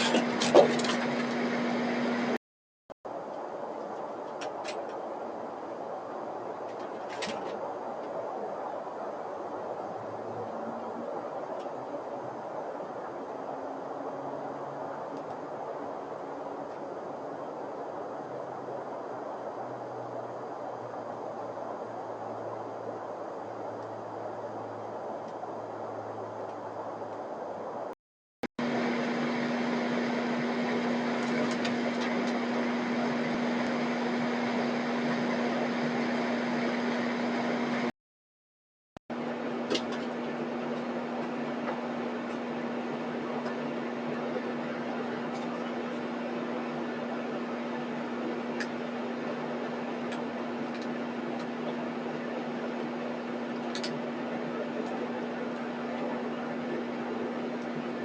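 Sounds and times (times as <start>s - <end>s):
machine hum: 0.0s - 2.4s, 28.6s - 37.9s, 39.1s - 58.0s
machine humming: 0.0s - 2.4s, 28.6s - 37.9s.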